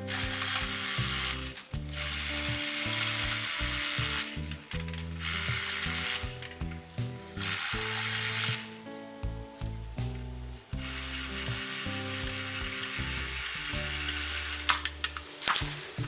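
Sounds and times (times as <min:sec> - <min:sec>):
background music: 0:00.0 - 0:16.0
reciprocating saw cutting bamboo: 0:00.1 - 0:06.5, 0:07.4 - 0:08.8, 0:10.8 - 0:14.7.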